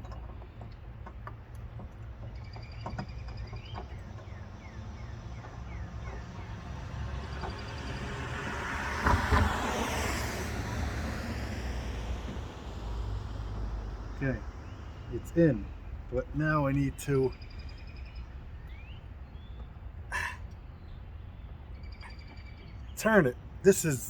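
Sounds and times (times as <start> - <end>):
birds chirping: 0.0 - 8.3, 13.5 - 24.0
vehicle passing by: 6.2 - 16.3.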